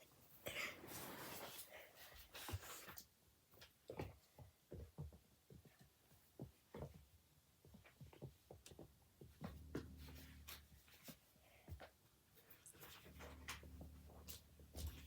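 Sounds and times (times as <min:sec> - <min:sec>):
faint low hum: 0:09.2 - 0:15.0.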